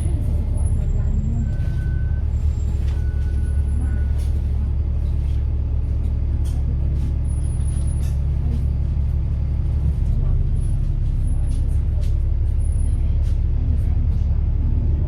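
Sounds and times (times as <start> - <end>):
bus body rattling: 0.0 - 14.8
bus diesel engine drone: 0.0 - 15.0.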